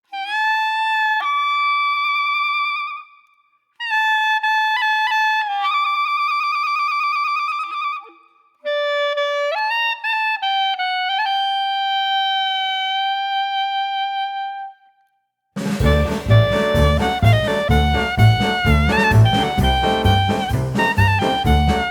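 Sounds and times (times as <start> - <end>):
wind instrument slow melody: 15.8 - 21.9.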